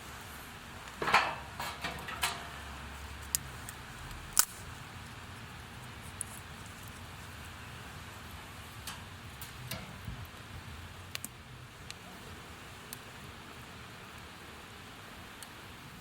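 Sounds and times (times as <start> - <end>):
steady hiss: 0.0 - 16.0
sharp clicks and ticks: 3.3 - 4.6, 11.1 - 12.0.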